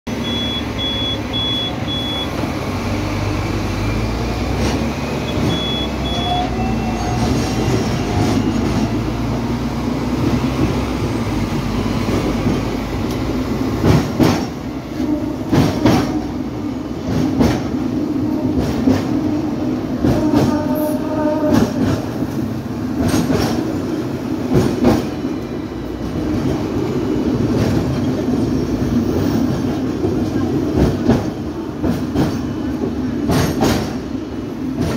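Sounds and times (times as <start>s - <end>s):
tram rumbling on tracks: 0.1s - 34.9s
wheels clacking over rail joints: 12.0s - 16.4s, 21.4s - 25.2s, 27.4s - 34.9s.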